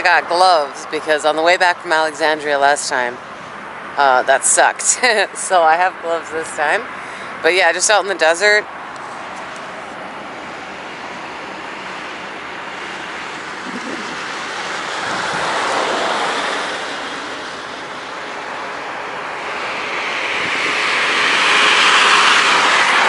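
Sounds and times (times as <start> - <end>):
outdoor rushing noise: 8.5 - 23.0.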